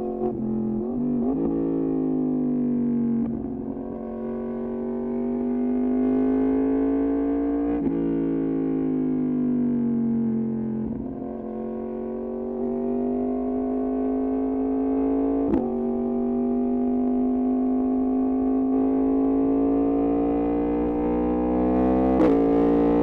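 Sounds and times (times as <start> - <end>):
motorcycle engine revving: 11.1 - 23.0.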